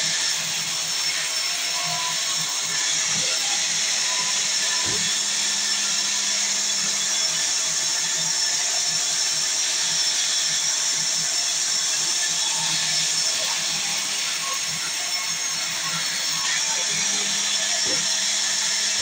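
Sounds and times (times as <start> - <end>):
sawmill saw hissing: 0.0 - 19.0.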